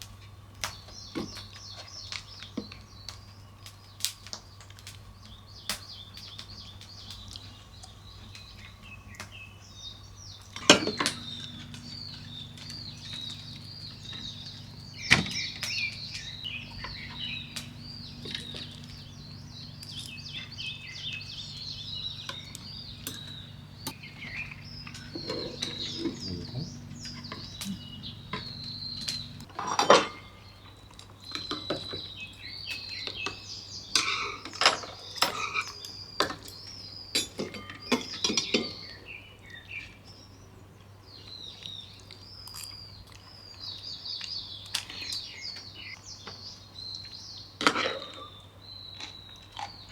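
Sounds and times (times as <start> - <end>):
small birds chirping: 0.1 - 29.5, 30.2 - 49.9
low steady hum: 10.6 - 29.5.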